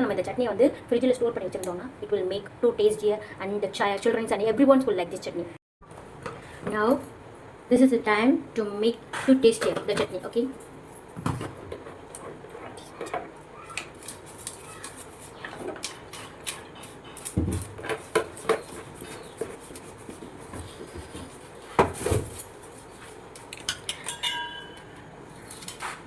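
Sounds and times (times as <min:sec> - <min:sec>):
pots and utensils clinking: 0:23.5 - 0:25.1.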